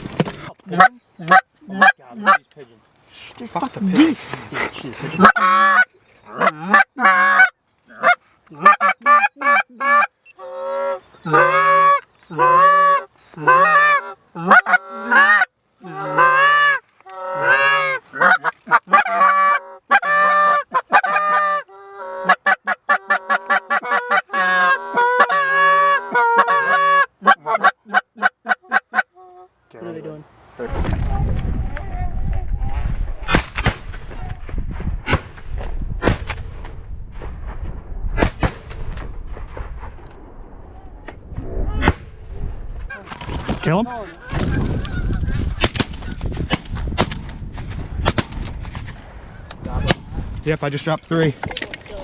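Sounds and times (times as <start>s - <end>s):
goose honking: 0.7s - 2.4s, 3.8s - 30.0s.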